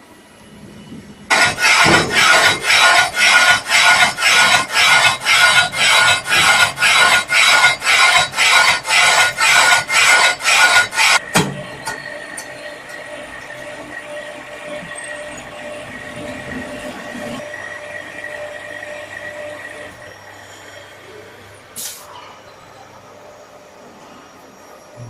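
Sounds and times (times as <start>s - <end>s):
machine scraping metal: 1.3s - 20.9s.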